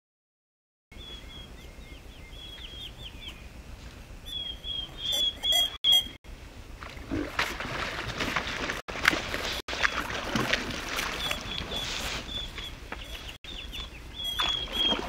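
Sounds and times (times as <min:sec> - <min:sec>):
songbird chirping: 0:00.9 - 0:03.6, 0:04.2 - 0:06.2, 0:11.0 - 0:15.0
low outdoor rumble: 0:01.0 - 0:14.4.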